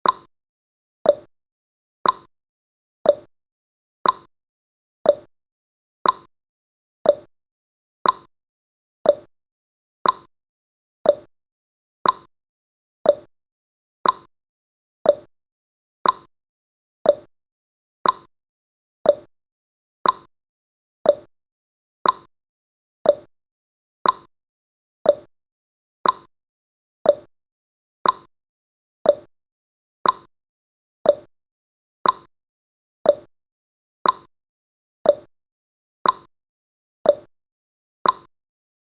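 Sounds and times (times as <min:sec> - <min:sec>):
clock ticking: 0:02.0 - 0:02.3, 0:04.0 - 0:04.3, 0:06.0 - 0:06.3, 0:08.0 - 0:08.3, 0:10.0 - 0:10.3, 0:12.0 - 0:12.3, 0:14.0 - 0:14.3, 0:16.0 - 0:16.3, 0:18.0 - 0:18.3, 0:20.0 - 0:20.3, 0:22.0 - 0:22.3, 0:23.1 - 0:23.3, 0:24.0 - 0:24.3, 0:26.0 - 0:26.3, 0:28.0 - 0:28.3, 0:29.1 - 0:29.3, 0:30.0 - 0:30.3, 0:31.1 - 0:31.3, 0:32.0 - 0:32.3, 0:33.1 - 0:33.3, 0:34.0 - 0:34.3, 0:36.0 - 0:36.3, 0:38.0 - 0:38.3.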